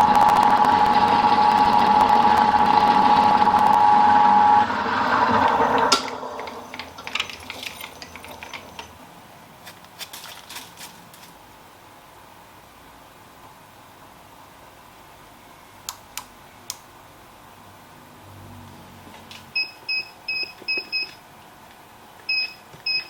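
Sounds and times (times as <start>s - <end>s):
milling machine cutting metal: 0.0s - 8.9s.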